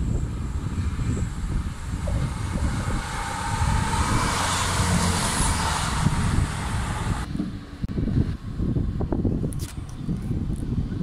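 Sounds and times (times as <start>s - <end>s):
wind buffeting microphone: 0.0s - 11.0s
passenger train passing: 0.1s - 7.8s.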